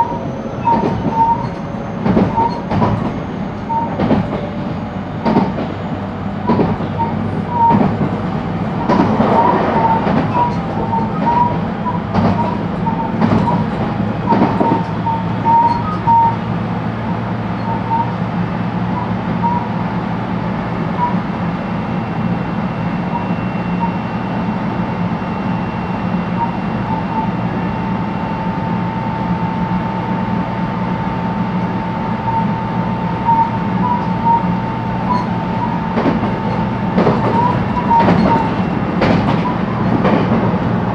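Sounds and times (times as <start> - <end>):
rail-joint clacks: 0.0 - 18.3, 33.1 - 40.9
train low rumble: 0.0 - 40.9.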